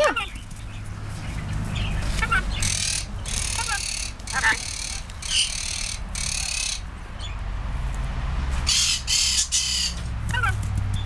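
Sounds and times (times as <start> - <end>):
lorikeet screeching: 2.2 - 6.9, 8.7 - 10.6.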